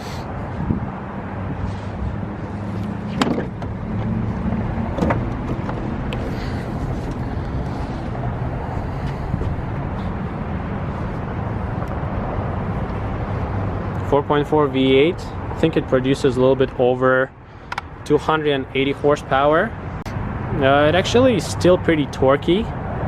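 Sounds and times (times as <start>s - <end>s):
car engine idling: 2.4s - 12.0s.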